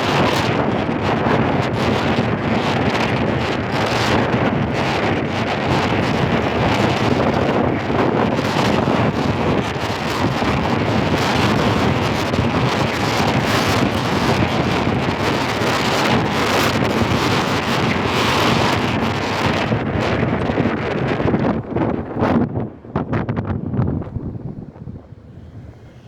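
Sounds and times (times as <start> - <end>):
wind buffeting microphone: 0.0 - 26.0
low steady rumble: 21.6 - 26.0.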